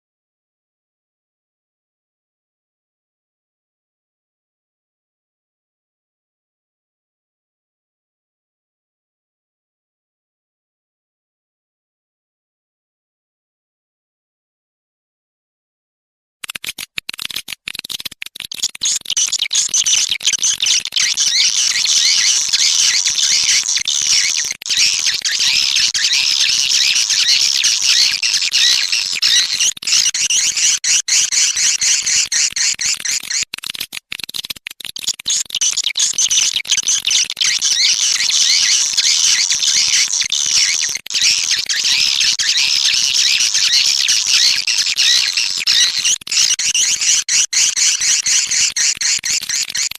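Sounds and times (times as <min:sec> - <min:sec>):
swiftlets twittering: 0:18.6 - 0:33.5, 0:34.8 - 0:49.9.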